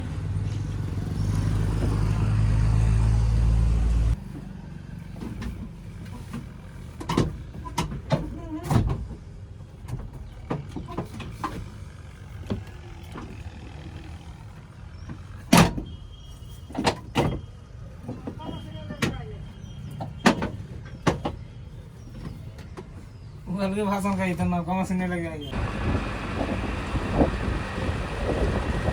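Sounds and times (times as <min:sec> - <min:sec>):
diesel engine running: 0:00.0 - 0:08.4, 0:09.1 - 0:15.5, 0:25.4 - 0:28.9
clanks and knocks: 0:05.1 - 0:13.8, 0:16.7 - 0:21.4.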